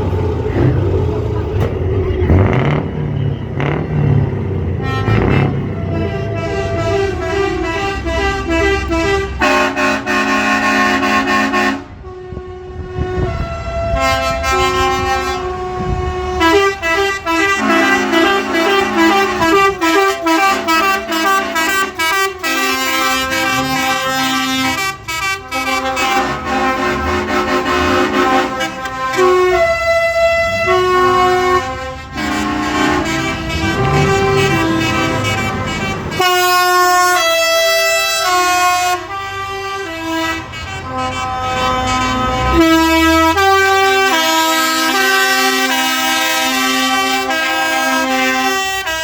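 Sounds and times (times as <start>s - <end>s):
truck air horns playing tune: 2.3s - 49.0s.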